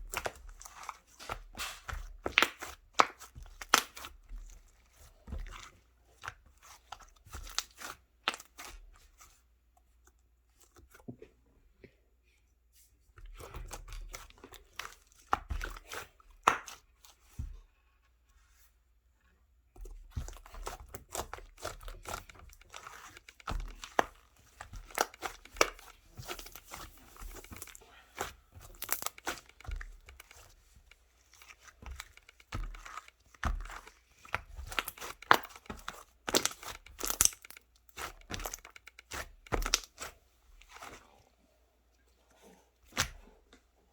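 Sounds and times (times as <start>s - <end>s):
crinkling and tearing handling noises: 20.2s - 41.0s.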